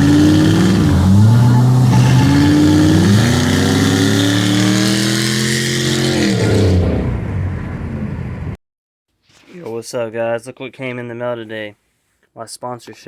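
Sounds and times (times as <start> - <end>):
car engine accelerating: 0.0 - 8.6.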